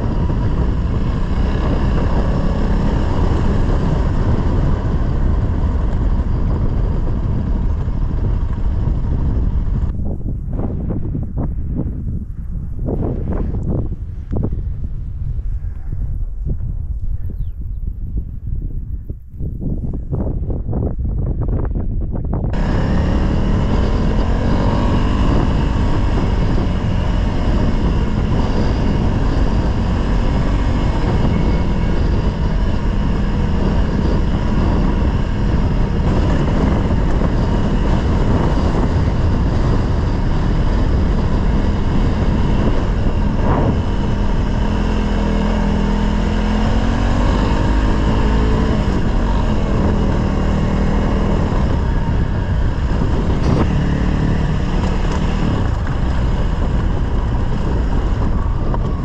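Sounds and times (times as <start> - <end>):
dirt bike engine revving: 0.0 - 9.9, 22.5 - 58.8
steady rushing noise: 0.0 - 59.0.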